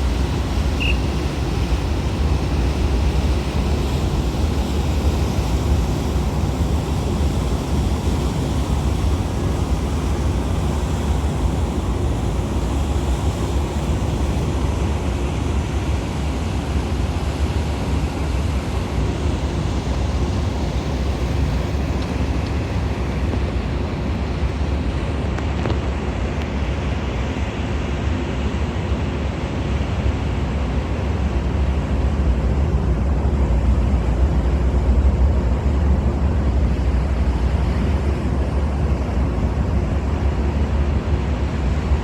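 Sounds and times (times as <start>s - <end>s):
ship engines rumbling: 0.0s - 25.4s
water noise: 0.0s - 26.0s.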